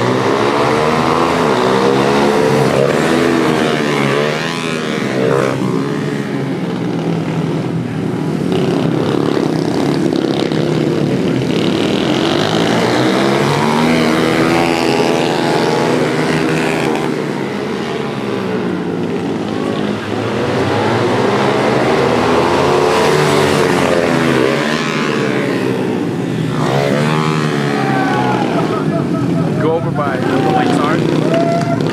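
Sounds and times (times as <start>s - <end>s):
pit bike engines revving: 0.0s - 31.9s.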